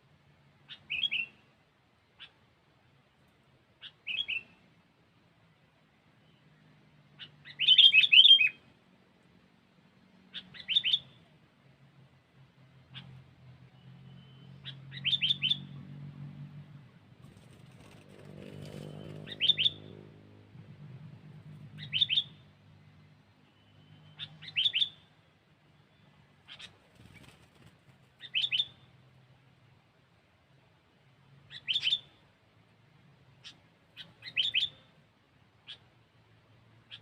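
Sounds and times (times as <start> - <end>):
bird calling rising notes: 12.9 - 16.0, 17.4 - 25.1, 25.8 - 28.9.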